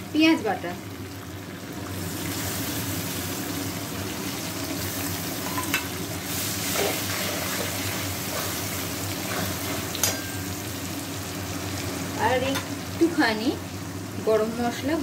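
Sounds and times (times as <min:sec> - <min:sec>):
onion paste sizzling in oil: 0:00.0 - 0:15.0.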